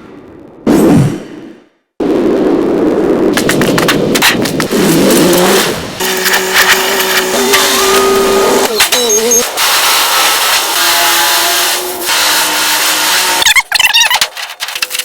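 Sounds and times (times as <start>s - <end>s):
car engine running and revving: 3.4s - 9.0s.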